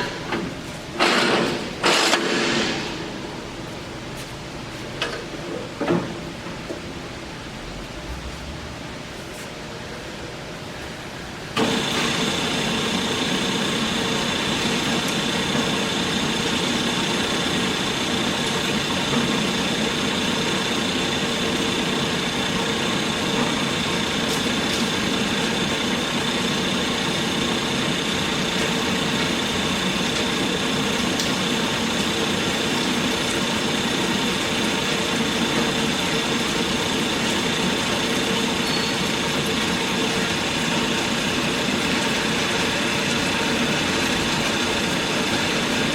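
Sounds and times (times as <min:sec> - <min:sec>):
band saw running with high whine: 0:11.6 - 0:45.9.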